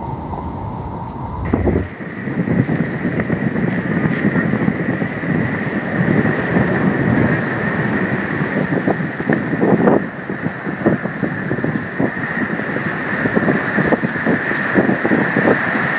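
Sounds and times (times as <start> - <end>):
thin steady whine: 0.0 - 5.2
gusty wind on microphone: 0.0 - 15.9.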